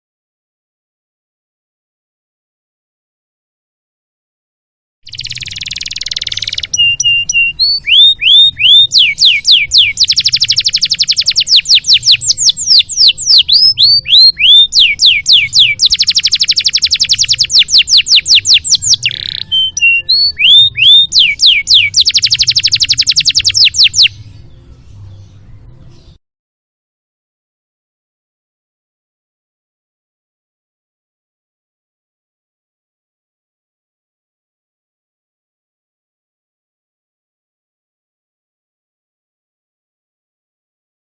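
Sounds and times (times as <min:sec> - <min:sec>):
canary singing: 0:05.1 - 0:26.2.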